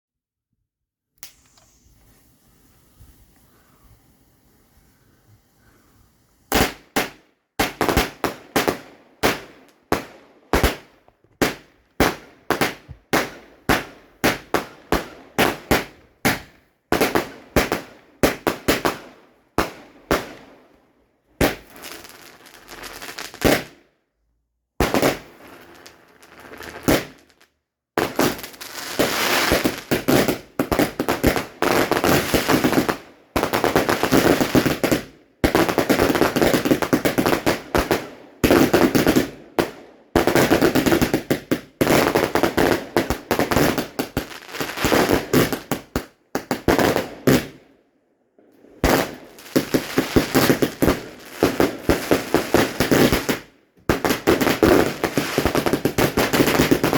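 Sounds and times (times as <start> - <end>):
fireworks crackling: 1.2 - 5.0, 6.4 - 20.6, 21.4 - 23.8, 24.8 - 47.6, 48.7 - 56.9
fireworks banging: 28.0 - 47.6, 48.8 - 56.9.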